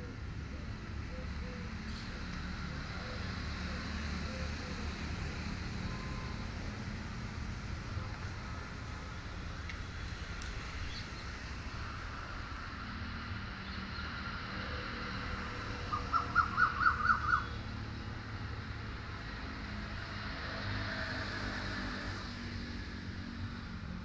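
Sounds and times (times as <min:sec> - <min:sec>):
bird calling sharp notes: 0:15.9 - 0:17.6.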